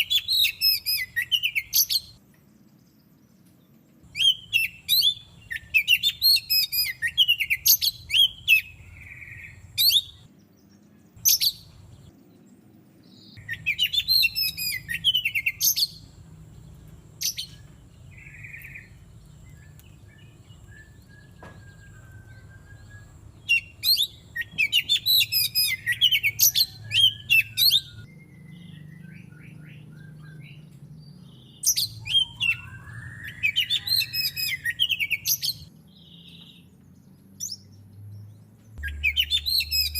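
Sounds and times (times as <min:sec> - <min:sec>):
songbird whistling and chattering: 0:00.0 - 0:02.2, 0:04.1 - 0:10.3, 0:11.2 - 0:12.0, 0:13.2 - 0:16.1, 0:17.2 - 0:30.6, 0:31.2 - 0:36.5, 0:38.8 - 0:39.9.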